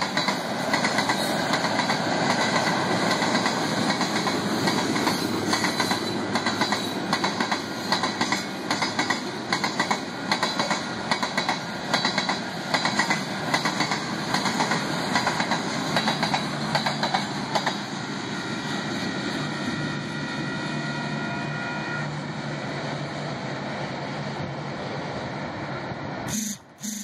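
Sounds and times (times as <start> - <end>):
wheels clicking over rail joints: 0.0 - 17.8
train rolling rumble: 0.0 - 26.3.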